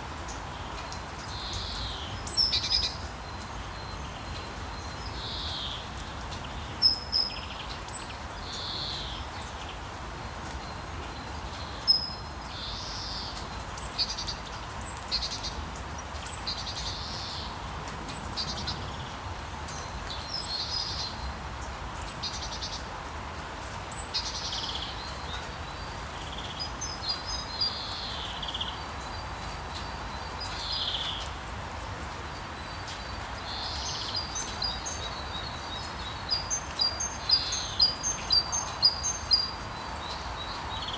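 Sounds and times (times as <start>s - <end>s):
birds chirping: 32.3s - 40.9s.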